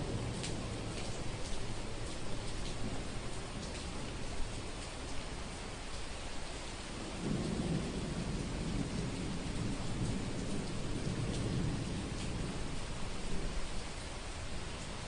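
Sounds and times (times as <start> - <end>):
steady rain: 0.0 - 15.0
thunder rumbling: 7.2 - 13.6.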